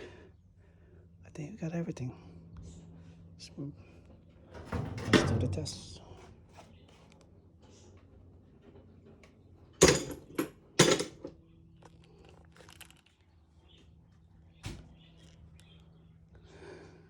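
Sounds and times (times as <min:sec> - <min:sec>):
faint steady hum: 0:00.0 - 0:17.0
sharp metal clunks: 0:09.8 - 0:11.3.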